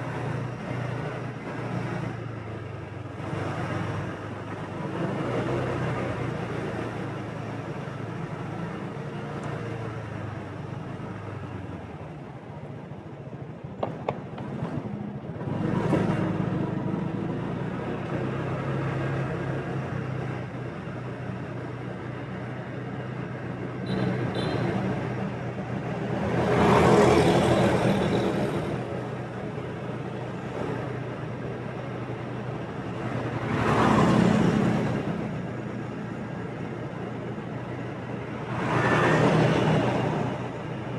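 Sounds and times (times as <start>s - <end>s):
road and wind noise: 0.0s - 40.9s
traffic passing: 0.0s - 40.9s.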